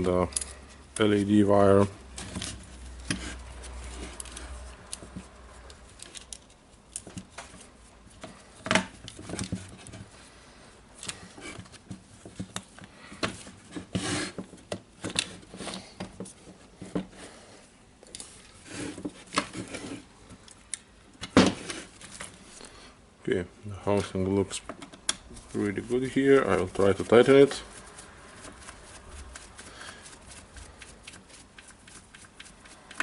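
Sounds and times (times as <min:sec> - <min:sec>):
plastic parts clicking and scraping: 0:01.8 - 0:10.1.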